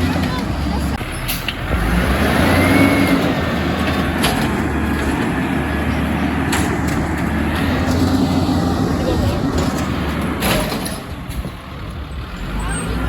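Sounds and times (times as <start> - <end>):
truck body rattle: 0.0 - 13.0
truck engine drone: 0.0 - 13.0.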